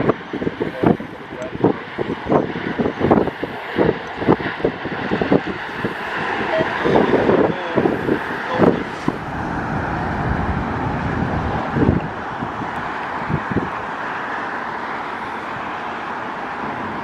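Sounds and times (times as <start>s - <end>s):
distant jet noise: 0.0s - 17.0s
traffic rumble: 0.0s - 17.0s
wind buffeting microphone: 0.0s - 17.0s.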